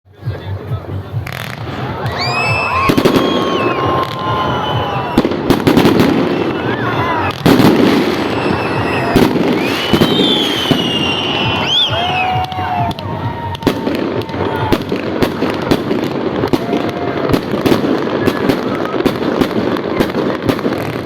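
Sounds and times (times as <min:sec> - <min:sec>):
firecrackers crackling: 0:00.5 - 0:21.0
fireworks bangs: 0:01.1 - 0:21.0
fireworks whistles gliding in pitch: 0:02.1 - 0:14.8.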